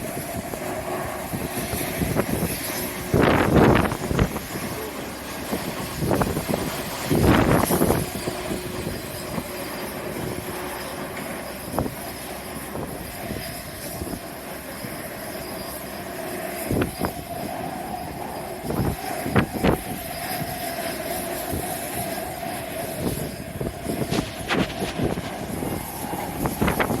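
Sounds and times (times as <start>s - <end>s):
jet engines whining: 0.0s - 27.0s
wind buffeting microphone: 0.0s - 27.0s.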